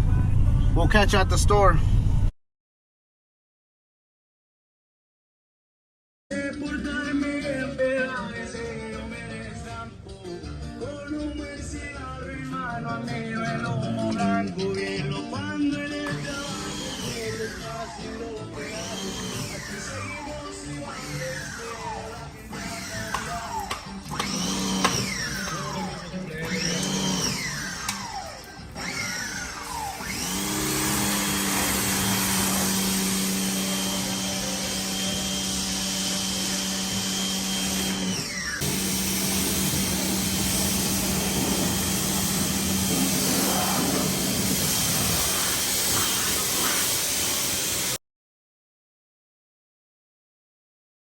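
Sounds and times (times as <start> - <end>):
electric power tool whining: 16.0 - 48.0.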